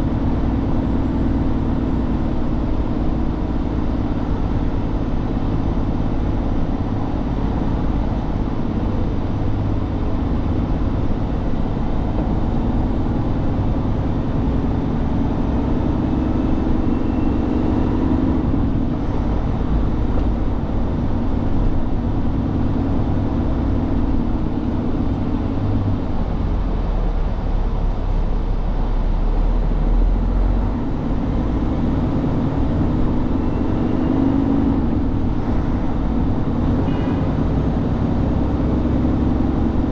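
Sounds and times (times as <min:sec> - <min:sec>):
truck engine rumbling: 0:00.0 - 0:39.9.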